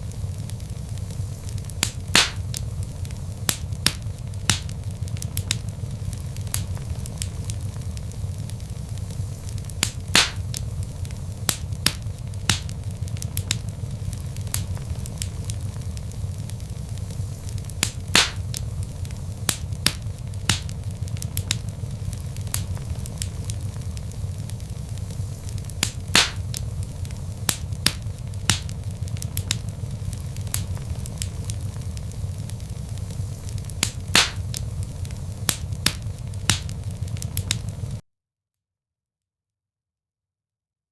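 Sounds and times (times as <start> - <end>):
logs crackling and popping: 0.0 - 38.0
low rumble of flames: 0.0 - 38.0.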